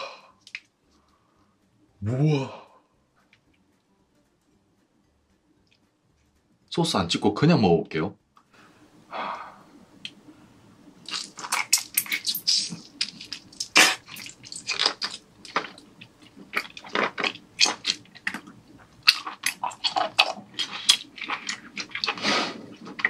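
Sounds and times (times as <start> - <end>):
chewing with mouth clicks: 11.0 - 23.0.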